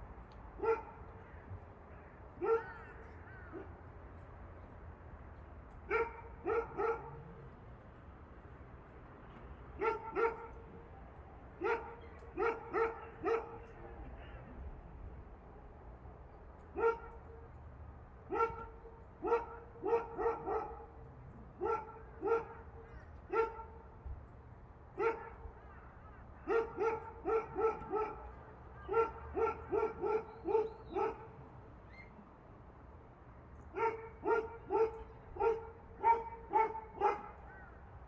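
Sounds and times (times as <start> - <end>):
dog barking: 0.6 - 1.0, 2.4 - 3.7, 5.9 - 7.2, 9.8 - 10.6, 11.6 - 13.7, 16.7 - 17.4, 18.3 - 21.0, 21.6 - 23.9, 25.0 - 25.5, 26.4 - 31.4, 33.7 - 37.7.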